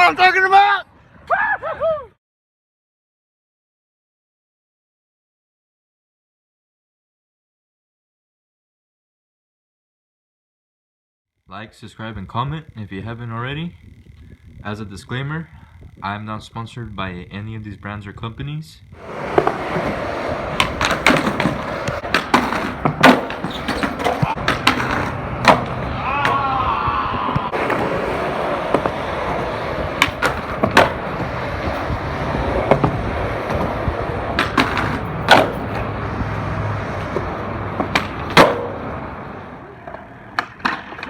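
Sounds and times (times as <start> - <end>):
skateboard clacking: 19.0 - 26.7, 27.3 - 41.0
skateboard wheels rolling: 19.0 - 41.0.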